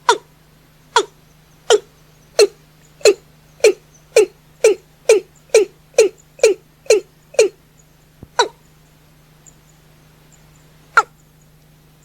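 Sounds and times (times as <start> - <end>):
faint low hum: 0.0 - 12.0
bird calling short sharp notes: 1.7 - 7.6.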